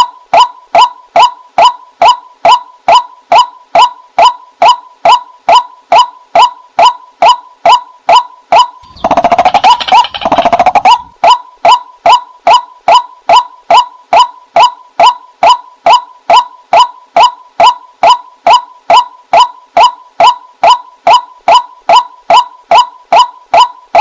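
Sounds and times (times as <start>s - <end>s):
repeated short bird call: 0.0s - 13.9s
chattering bird notes: 8.8s - 11.0s.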